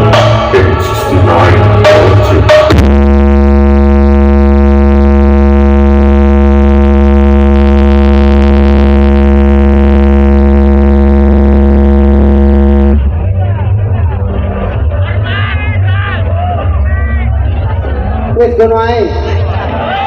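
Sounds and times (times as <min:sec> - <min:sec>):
held electronic note: 0:00.0 - 0:13.2
heavy deep bass drone: 0:00.0 - 0:20.0.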